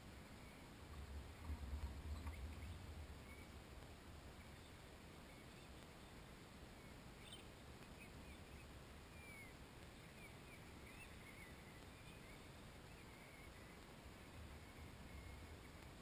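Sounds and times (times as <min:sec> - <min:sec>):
faint bird chirps: 0:00.0 - 0:16.0
low steady hiss and rumble: 0:00.0 - 0:16.0.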